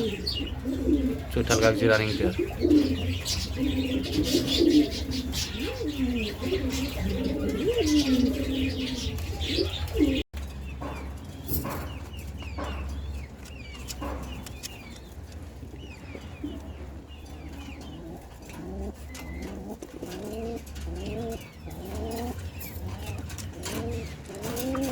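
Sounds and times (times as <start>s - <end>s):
pigeons cooing: 0.0s - 10.2s, 10.8s - 24.9s
small birds chirping: 0.0s - 24.9s.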